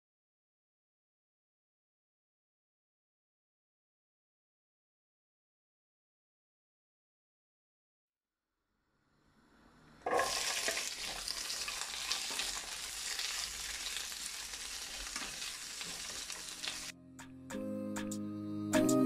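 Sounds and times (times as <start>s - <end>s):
vegetables sizzling in hot oil: 10.0s - 16.9s.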